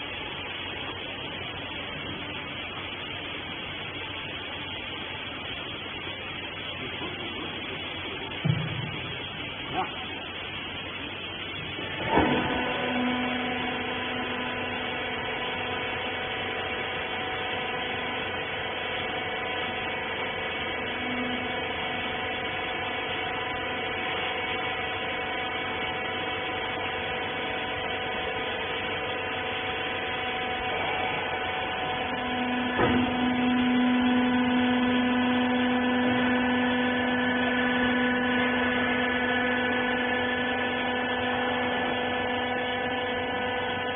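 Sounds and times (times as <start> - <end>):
baler motor and pump humming: 0.0 - 43.9
knock: 8.4 - 8.9.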